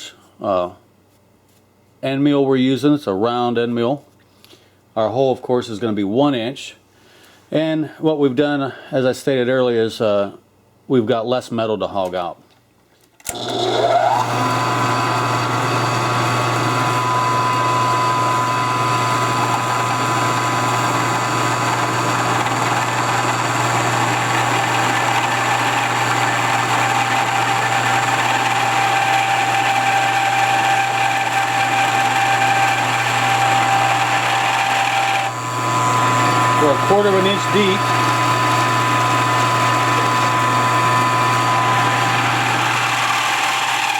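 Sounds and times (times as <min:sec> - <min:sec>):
milling machine motor whine: 0:13.3 - 0:43.9.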